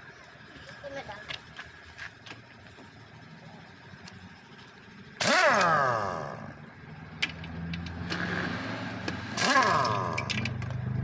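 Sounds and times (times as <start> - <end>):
engine revving and idling: 2.8 - 11.0.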